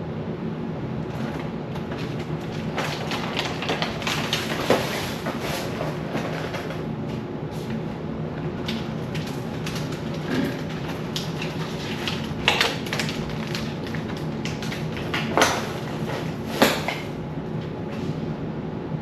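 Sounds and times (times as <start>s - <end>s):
steady low hum: 0.0s - 19.0s
objects knocking and clattering: 2.7s - 6.8s, 8.7s - 17.2s.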